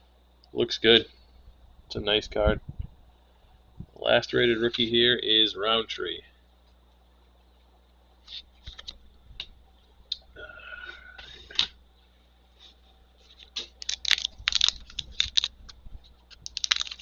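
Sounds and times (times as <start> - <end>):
trading cards being handled: 8.2 - 9.0, 12.6 - 17.0
wrapper crackling: 13.4 - 17.0.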